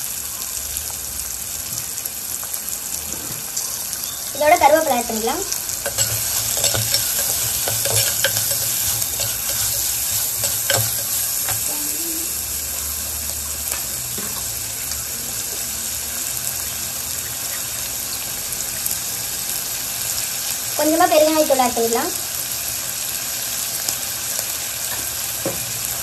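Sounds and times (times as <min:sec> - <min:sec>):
vegetables sizzling in hot oil: 0:00.0 - 0:26.0
ladle scraping a pot: 0:05.8 - 0:11.6.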